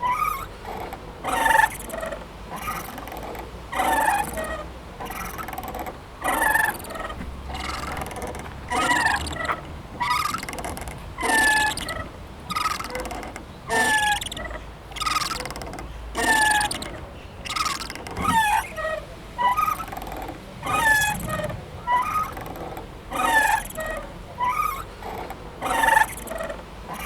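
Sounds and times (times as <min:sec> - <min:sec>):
playground swing squeaking: 0:00.0 - 0:27.0.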